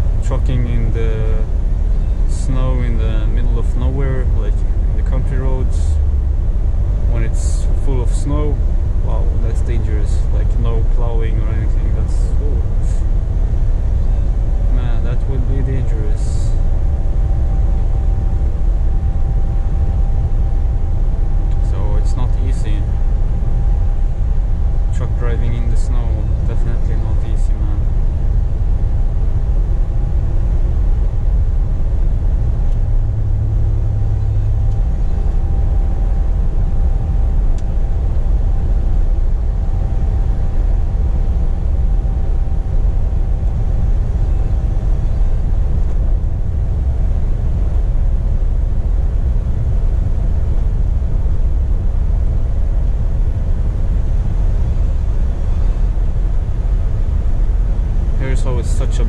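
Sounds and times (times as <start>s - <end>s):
faint steady whine: 0.0s - 59.0s
truck engine and road rumble: 0.0s - 59.0s.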